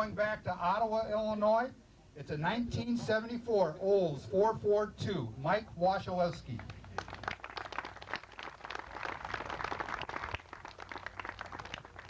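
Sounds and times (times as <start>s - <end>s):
small crowd applauding: 6.5s - 12.0s.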